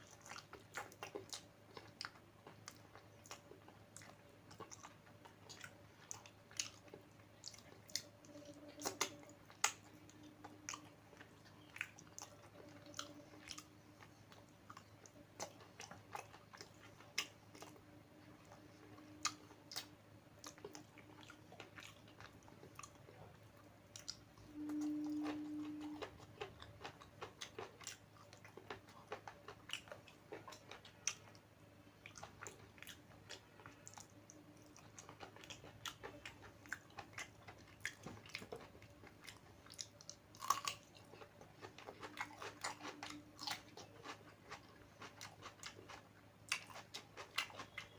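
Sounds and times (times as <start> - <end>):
chewing and eating: 0.0 - 47.9
food crunch: 23.9 - 31.4, 32.1 - 47.9
person humming: 24.5 - 26.0.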